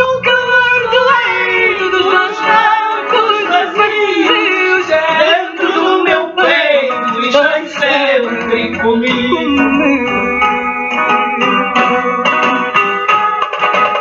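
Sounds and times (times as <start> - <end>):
instrumental accompaniment: 0.0 - 14.0
person singing ornamented notes: 7.3 - 12.8.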